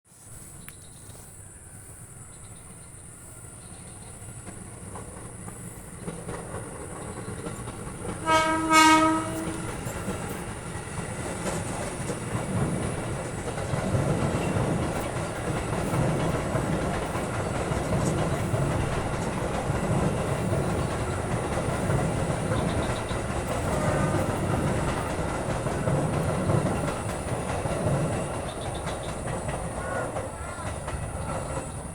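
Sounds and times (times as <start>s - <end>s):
train rumbling past: 0.1s - 31.9s
wheels clattering on rails: 3.5s - 31.9s
train horn blast: 8.0s - 10.6s, 20.1s - 27.0s.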